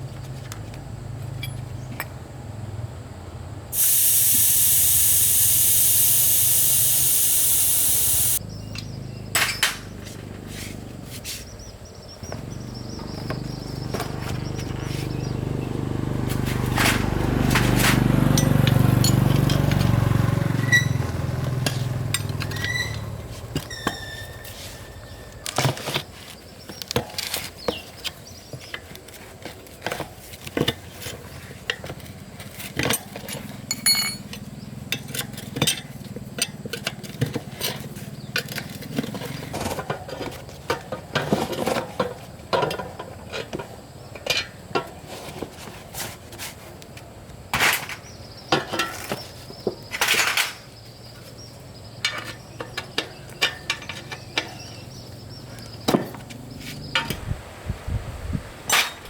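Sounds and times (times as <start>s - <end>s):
metal tools clinking and knocking: 32.8s - 36.9s.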